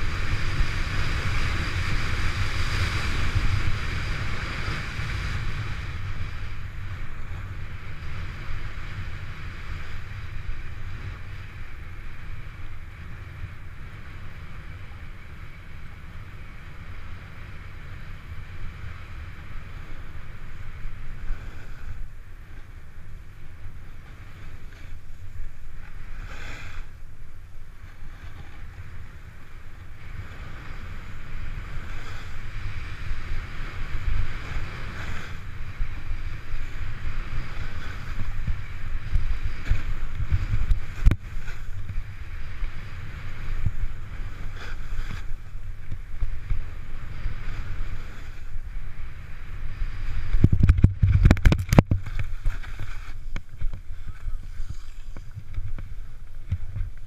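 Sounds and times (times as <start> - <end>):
snowboard scraping over snow: 0.0 - 57.0
wind buffeting microphone: 0.0 - 57.0.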